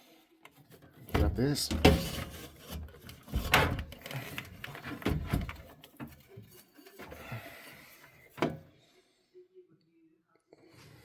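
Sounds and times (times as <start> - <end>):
knocks and clunks of metal parts: 1.1 - 6.3.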